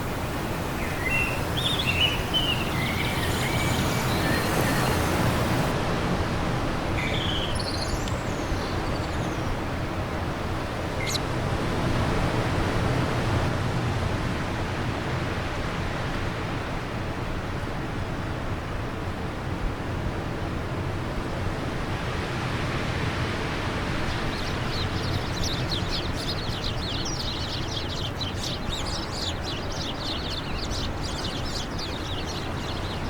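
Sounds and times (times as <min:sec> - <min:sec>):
songbirds chirping: 0:00.0 - 0:05.7, 0:07.0 - 0:11.2, 0:23.8 - 0:33.0
wind blowing: 0:00.0 - 0:11.8, 0:23.0 - 0:33.0.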